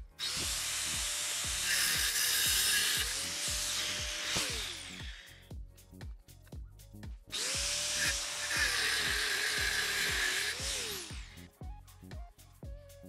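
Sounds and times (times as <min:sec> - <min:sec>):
angle grinder cutting metal tube: 0:00.0 - 0:05.4, 0:07.3 - 0:11.5
background music with steady beat: 0:00.0 - 0:13.0.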